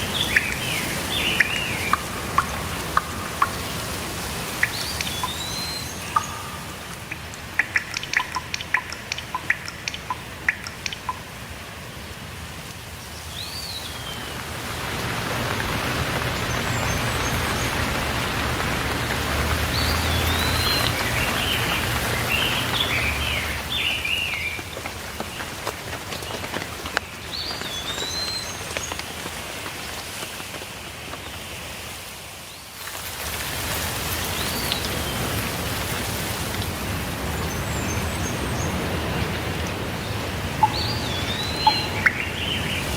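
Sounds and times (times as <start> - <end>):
birds chirping: 0.0 - 11.3, 13.1 - 25.6, 37.2 - 42.9
steady rainfall: 0.0 - 42.9
water drops tapping: 0.3 - 11.3, 40.6 - 42.7.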